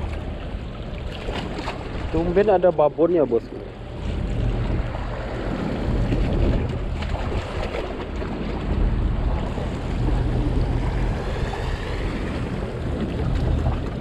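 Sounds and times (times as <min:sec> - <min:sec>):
boat engine hum: 0:00.0 - 0:14.0
wind on microphone: 0:03.8 - 0:14.0.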